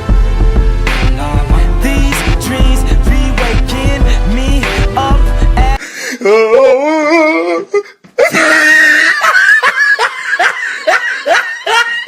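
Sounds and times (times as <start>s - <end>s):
person laughing: 6.3s - 12.0s.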